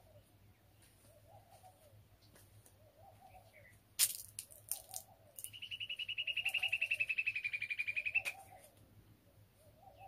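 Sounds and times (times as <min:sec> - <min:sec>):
dove cooing: 0:01.0 - 0:02.0, 0:02.8 - 0:03.7, 0:05.0 - 0:10.0.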